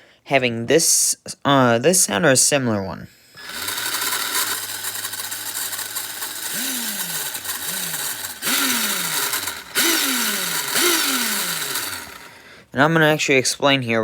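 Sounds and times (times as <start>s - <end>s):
gearbox grinding rattle: 3.4s - 12.4s
electric motor whine: 3.4s - 12.5s.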